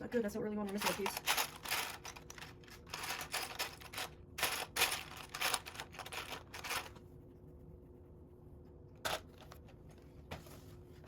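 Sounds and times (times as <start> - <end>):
plastic bricks clattering: 0.7 - 6.9.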